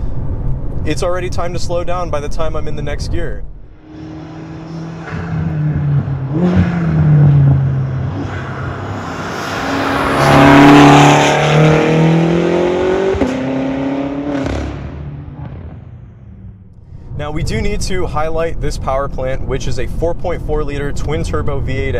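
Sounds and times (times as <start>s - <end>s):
car engine revving: 3.6s - 16.8s.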